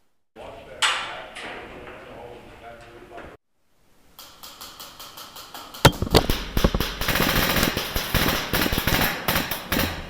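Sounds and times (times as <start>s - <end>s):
sharp loud cracks: 4.2s - 10.0s
airsoft guns firing bursts: 5.9s - 10.0s.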